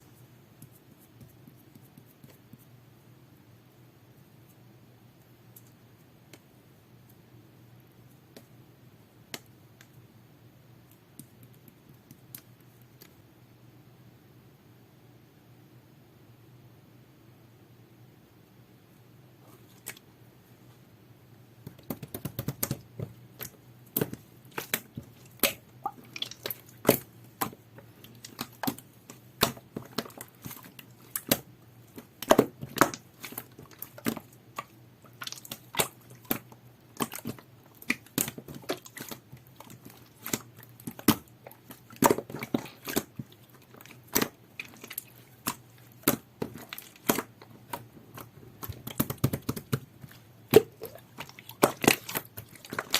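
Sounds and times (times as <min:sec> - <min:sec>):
slime squished by hand: 0:21.7 - 0:52.9.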